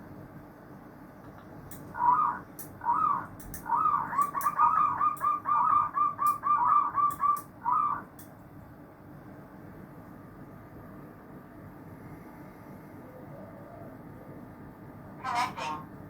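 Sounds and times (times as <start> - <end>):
dove cooing: 15.2 - 15.9.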